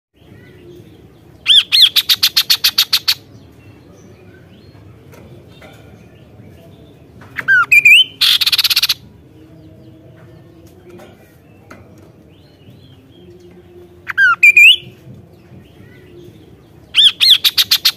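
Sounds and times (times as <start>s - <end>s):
bird singing sharp notes: 7.4s - 9.0s, 14.0s - 15.0s, 16.9s - 17.9s.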